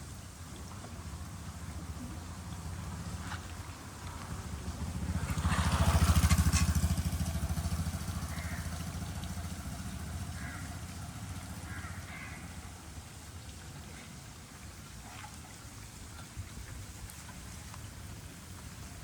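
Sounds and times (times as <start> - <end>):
vehicle engine passing by: 1.1 - 13.0.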